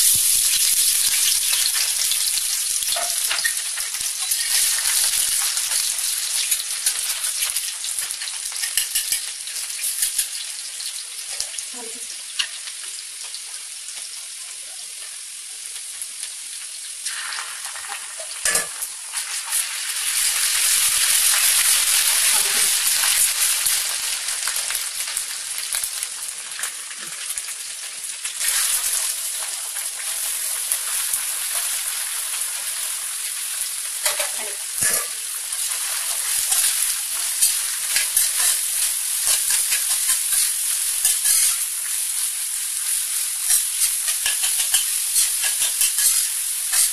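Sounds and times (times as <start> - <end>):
vegetables sizzling in hot oil: 0.0 - 46.9
metal spatula scraping a pan: 4.2 - 9.3, 34.0 - 41.7, 43.4 - 46.9.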